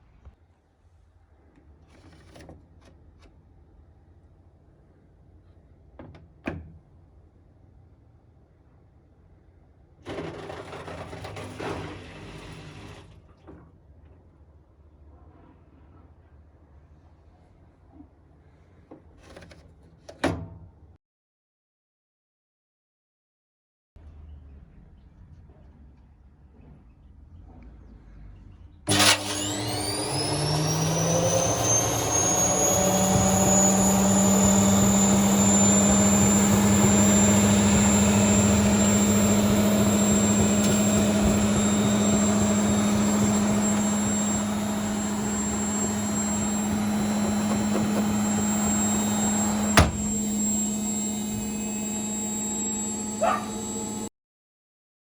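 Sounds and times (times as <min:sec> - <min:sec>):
washing machine spinning: 0:28.9 - 0:54.1.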